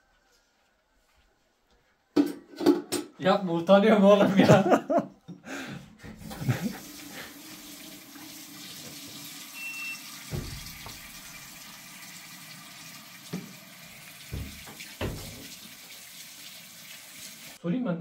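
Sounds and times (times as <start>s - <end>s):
water running from a tap: 6.2s - 17.6s
dull knocks: 10.3s - 11.2s, 14.3s - 15.5s.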